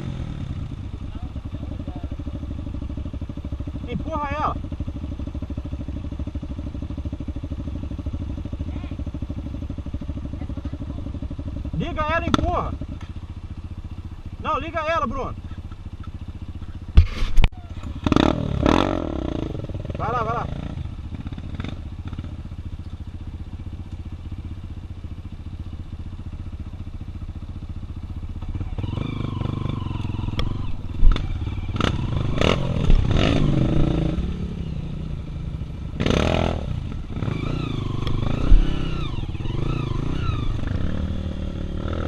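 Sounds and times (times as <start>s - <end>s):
motorcycle engine idling: 0.0s - 42.0s
motorcycle engines revving: 0.0s - 42.0s
clatter and sharp thumps: 16.8s - 17.6s.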